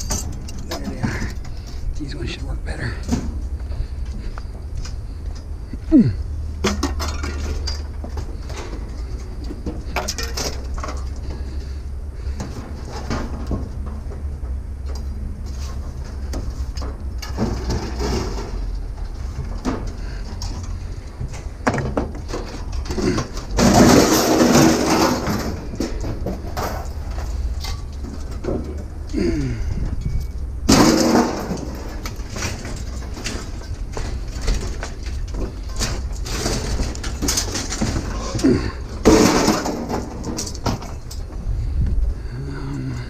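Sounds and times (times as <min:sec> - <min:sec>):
metal pieces clattering: 0:00.0 - 0:01.4, 0:06.6 - 0:08.0, 0:09.9 - 0:11.2, 0:22.3 - 0:28.4, 0:30.1 - 0:41.3
low steady rumble: 0:00.0 - 0:43.0.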